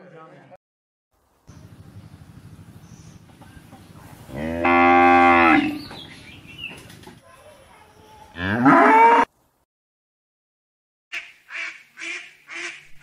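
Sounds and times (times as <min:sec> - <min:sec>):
cow mooing: 0:04.3 - 0:05.8, 0:08.4 - 0:09.3.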